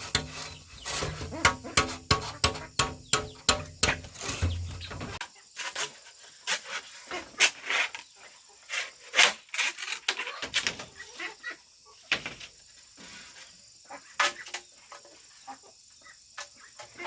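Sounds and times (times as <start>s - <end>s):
tool rasping wood: 0.0s - 5.2s.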